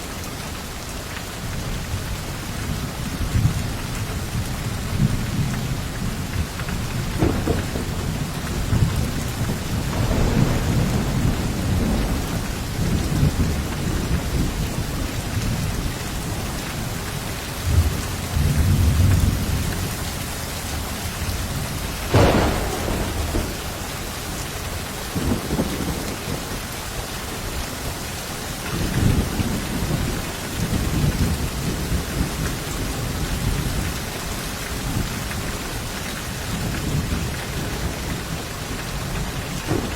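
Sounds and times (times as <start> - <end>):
heavy rain: 0.0 - 39.9
rolling thunder: 2.7 - 16.4, 20.8 - 27.5, 36.5 - 39.9
sharp thunderclap: 6.4 - 14.6, 22.0 - 26.6, 39.0 - 39.9.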